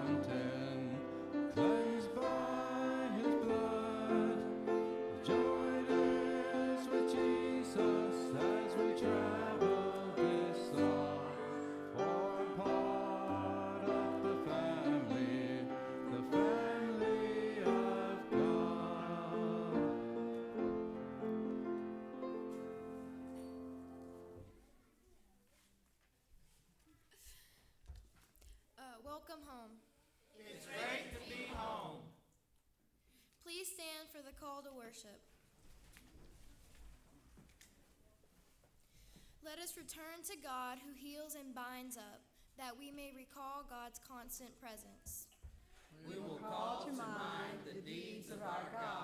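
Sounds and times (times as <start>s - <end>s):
church singing with instruments: 0.0s - 24.2s, 46.0s - 49.0s.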